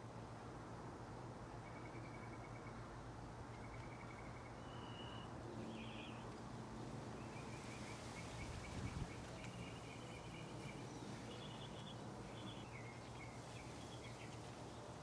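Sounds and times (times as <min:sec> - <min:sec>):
small birds trilling: 0:03.6 - 0:06.5, 0:07.1 - 0:15.0.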